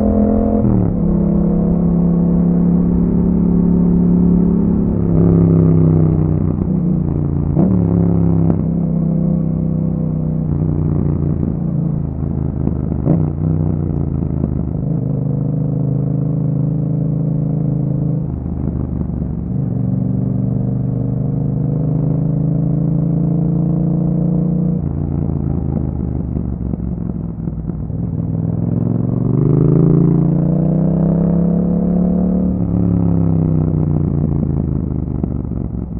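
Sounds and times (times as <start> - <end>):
motorcycle engine revving while riding: 0.0 - 35.9.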